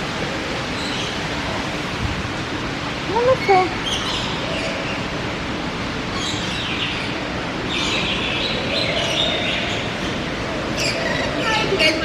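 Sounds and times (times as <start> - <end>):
steady rushing noise: 0.0 - 12.0
birds chirping and squawking: 6.1 - 12.0.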